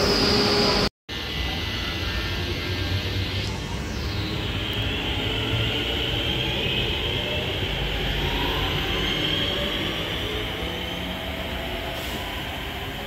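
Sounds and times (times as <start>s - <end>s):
high whine: 0.0s - 11.6s.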